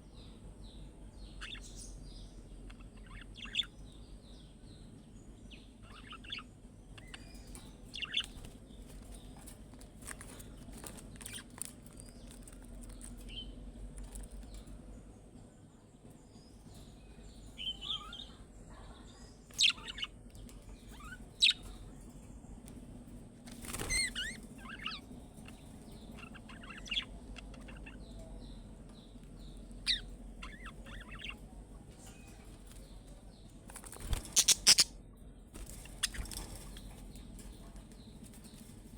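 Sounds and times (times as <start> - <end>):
budgerigars chirping: 2.6 - 3.7, 5.8 - 8.5, 19.5 - 20.2, 20.9 - 21.8, 23.7 - 31.4, 34.2 - 35.0.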